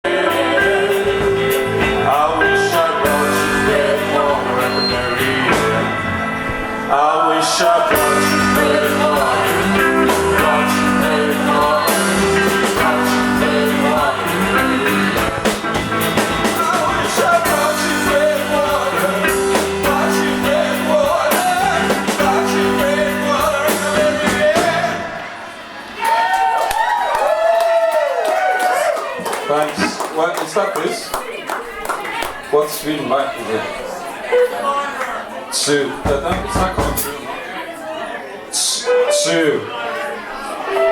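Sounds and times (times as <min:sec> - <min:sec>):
drum kit: 0:00.0 - 0:06.9, 0:07.6 - 0:27.2, 0:36.0 - 0:37.2
person singing: 0:00.0 - 0:25.4
electric guitar: 0:00.1 - 0:26.7
rock band playing: 0:00.1 - 0:26.9, 0:36.1 - 0:37.2.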